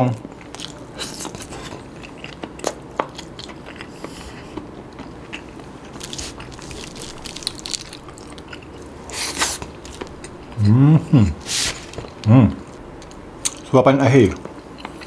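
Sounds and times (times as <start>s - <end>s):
person chewing chewy food: 0.3s - 13.7s, 14.3s - 15.0s
crackling rustle: 5.3s - 10.4s.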